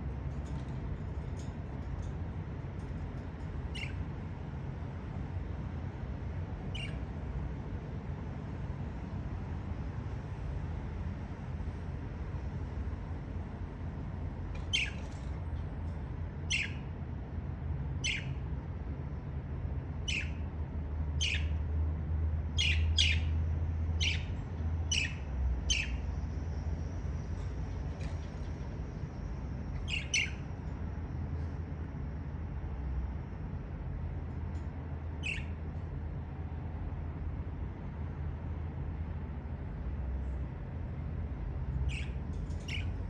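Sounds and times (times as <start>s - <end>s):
steady low hum: 0.0s - 43.0s
budgerigar chirps: 6.7s - 7.0s, 18.0s - 18.4s, 29.8s - 30.4s, 35.2s - 35.6s, 41.9s - 42.9s.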